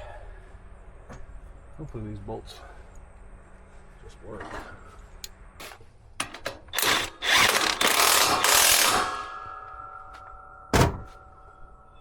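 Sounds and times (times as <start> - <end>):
rapid mechanical clatter of tool: 6.2 - 9.3
faint ringing: 9.1 - 12.0.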